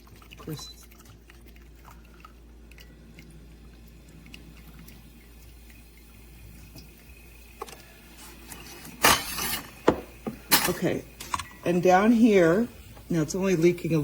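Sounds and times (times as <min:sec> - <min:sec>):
water dripping and trickling: 0:00.0 - 0:08.9
low steady hum: 0:00.0 - 0:14.0.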